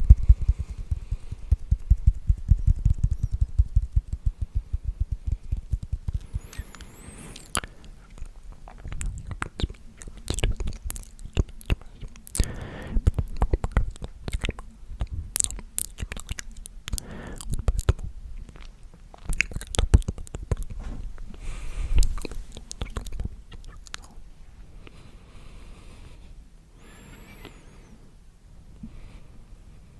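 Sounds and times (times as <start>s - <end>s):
wet mouth clicks and smacks: 0.0s - 20.8s, 21.4s - 24.2s
breathy whispers: 4.2s - 14.6s, 16.1s - 18.0s, 19.4s - 24.2s.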